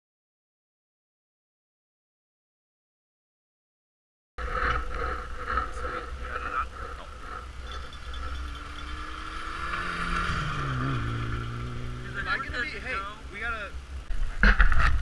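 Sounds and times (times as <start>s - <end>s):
rally car engine passing: 4.4s - 14.1s
low rumble: 4.4s - 15.0s.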